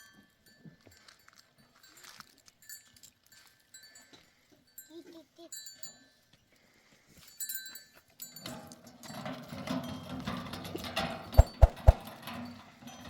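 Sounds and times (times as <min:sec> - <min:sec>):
livestock bells clinking: 0:00.0 - 0:06.3, 0:07.2 - 0:10.8.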